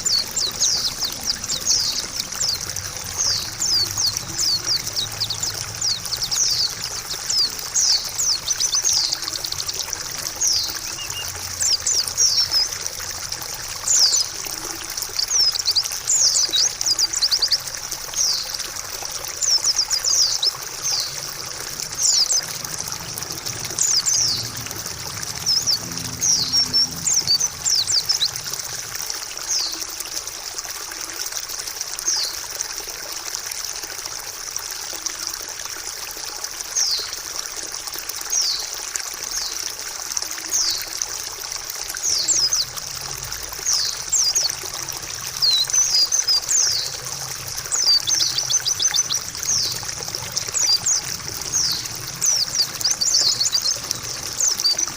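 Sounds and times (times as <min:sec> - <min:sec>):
high down-slurred bird chirps: 0:00.0 - 0:12.8
water trickling: 0:00.0 - 0:54.9.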